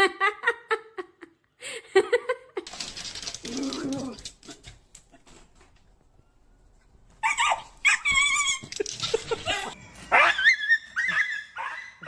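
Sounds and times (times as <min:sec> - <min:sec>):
dog yipping: 0:07.2 - 0:08.8, 0:10.1 - 0:12.0
dog whining and yelping: 0:07.2 - 0:12.0.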